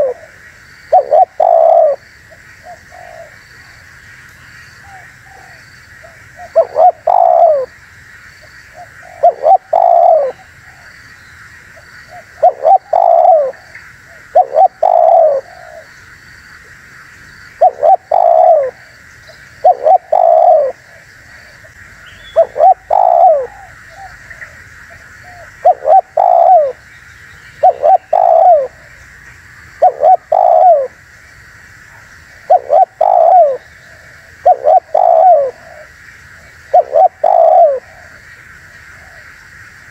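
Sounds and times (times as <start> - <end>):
dove cooing: 0.0 - 3.4, 4.8 - 7.7, 8.7 - 10.9, 12.1 - 15.9, 17.6 - 18.9, 19.6 - 26.8, 27.6 - 28.9, 29.8 - 31.0, 32.4 - 38.2, 38.9 - 39.3
steady high hiss: 0.0 - 39.9.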